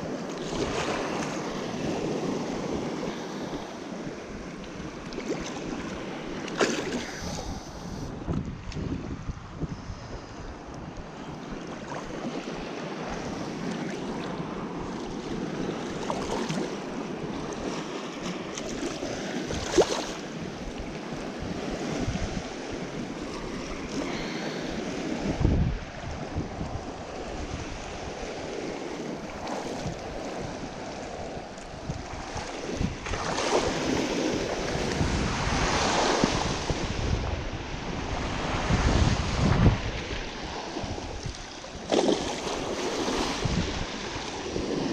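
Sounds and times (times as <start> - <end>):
rush of open water: 0.0 - 44.9
wind buffeting microphone: 3.6 - 44.9.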